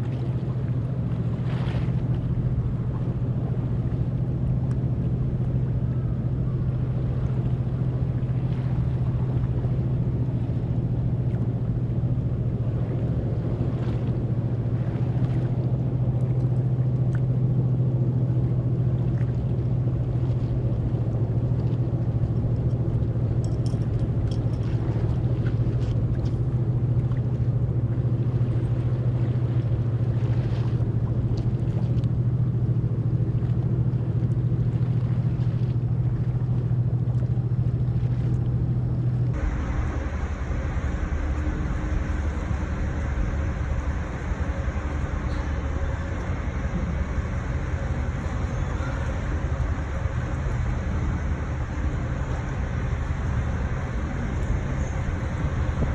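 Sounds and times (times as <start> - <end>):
constant rushing noise: 0.0 - 55.9
ferry engines droning: 0.0 - 55.9.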